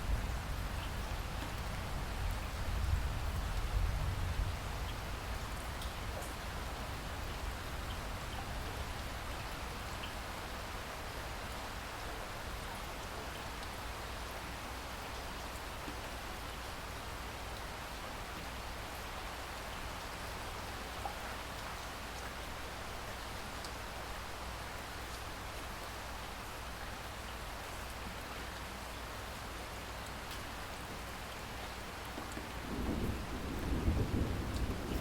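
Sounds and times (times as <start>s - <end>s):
steady rain hiss: 0.0s - 35.0s
raindrop ticks: 32.1s - 33.8s, 34.4s - 35.0s.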